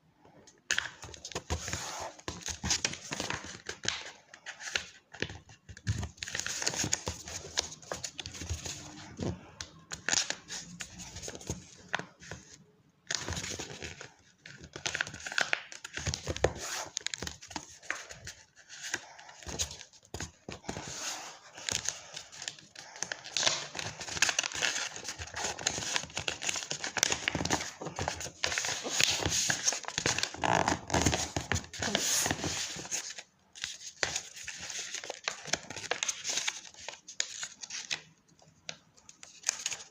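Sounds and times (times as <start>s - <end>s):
paper crinkling and rustling: 13.1s - 38.1s, 38.7s - 39.9s.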